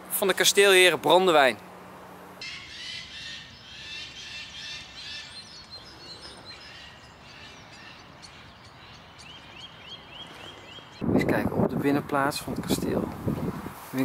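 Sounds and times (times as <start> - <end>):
bird repeating rising note: 2.4 - 11.0
songbirds singing: 2.4 - 11.1
outdoor hiss: 12.0 - 14.0.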